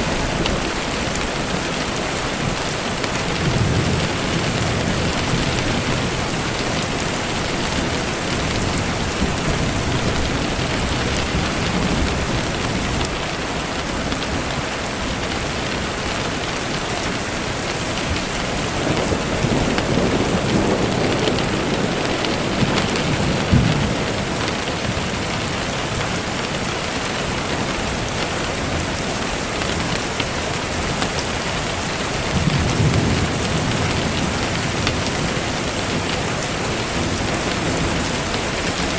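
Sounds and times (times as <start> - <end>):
heavy rain falling: 0.0 - 38.9
distant thunder rolling: 18.0 - 26.1.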